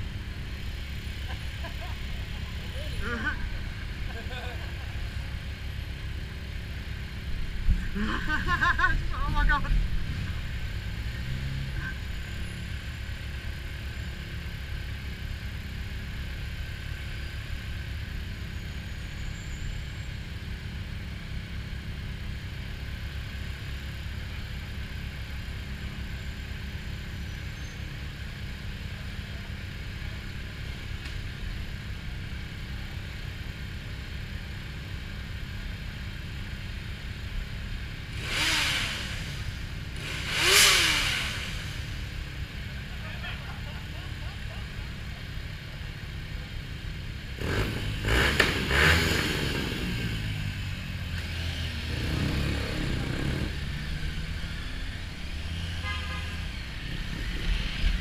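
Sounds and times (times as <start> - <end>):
motorcycle engine idling: 0.0 - 48.9
rising and falling engine rush: 38.1 - 45.1, 47.4 - 58.0.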